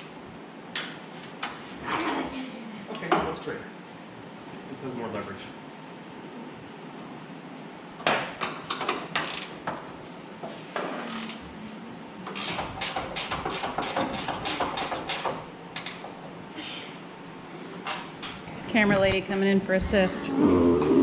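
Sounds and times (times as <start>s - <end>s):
socket ratchet clicking: 9.2s - 9.6s, 11.1s - 11.4s, 12.4s - 16.0s.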